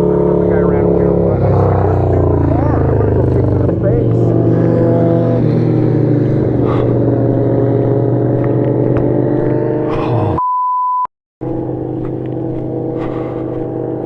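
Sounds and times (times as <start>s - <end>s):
vehicle engine idling: 0.0s - 9.5s, 11.4s - 14.0s
censor bleep: 10.4s - 11.1s.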